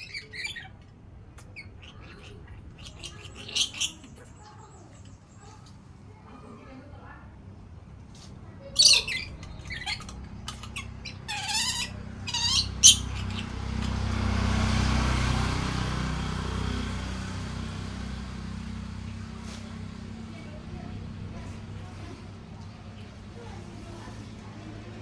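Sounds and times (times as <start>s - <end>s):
parrot squawking: 0.0s - 0.7s, 1.6s - 4.3s, 8.7s - 14.1s.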